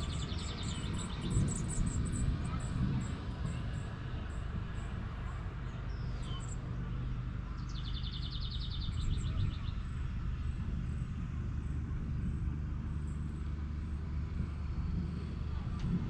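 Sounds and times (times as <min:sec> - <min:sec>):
bird chirp: 0:00.0 - 0:02.2, 0:07.6 - 0:10.0
low outdoor rumble: 0:00.0 - 0:16.0.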